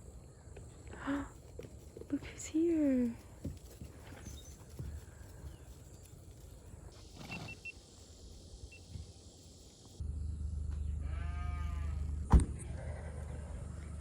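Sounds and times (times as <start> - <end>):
low steady rumble: 10.0 - 14.0
goat bleating: 11.0 - 12.0.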